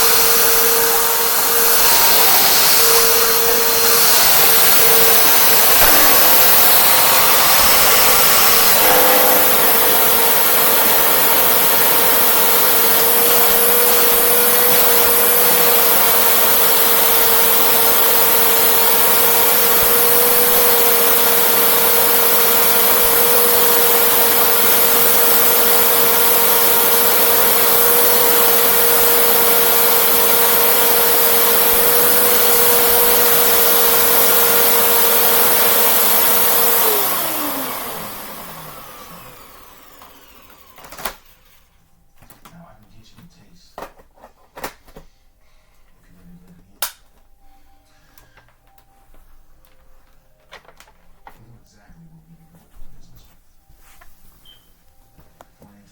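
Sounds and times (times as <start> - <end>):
vacuum cleaner running: 0.0 - 41.8.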